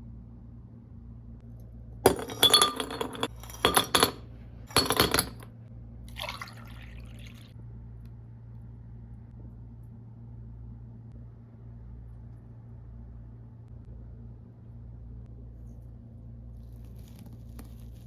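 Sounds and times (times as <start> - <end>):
glass clinking: 2.1 - 5.4.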